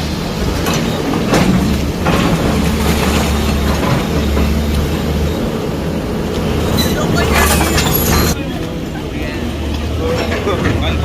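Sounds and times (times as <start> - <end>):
diesel machinery droning: 0.0 - 10.8
knocks and clanks: 0.4 - 5.2.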